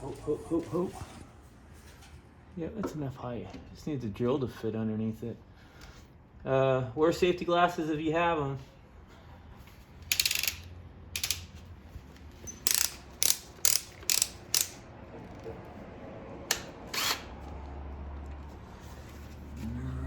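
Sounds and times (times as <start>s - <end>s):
drill chuck ratcheting clicks: 10.0s - 11.6s, 12.5s - 15.4s.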